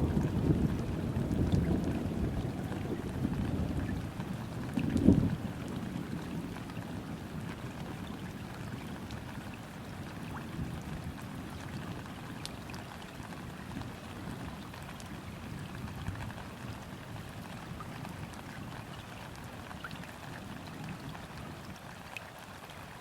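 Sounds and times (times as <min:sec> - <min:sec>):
rain falling on river: 0:00.0 - 0:23.0.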